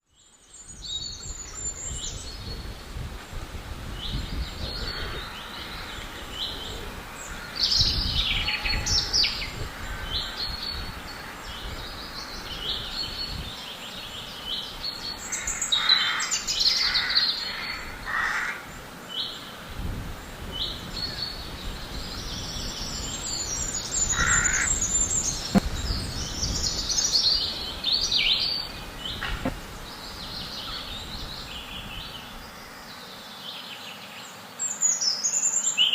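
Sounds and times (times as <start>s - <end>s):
birds chirping and warbling: 3.9s - 35.7s
harsh caw-like calls: 15.3s - 18.6s, 24.1s - 24.7s.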